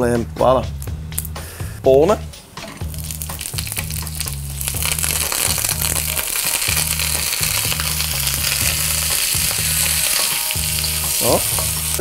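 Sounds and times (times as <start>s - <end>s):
food sizzling in a wok: 2.8s - 12.0s.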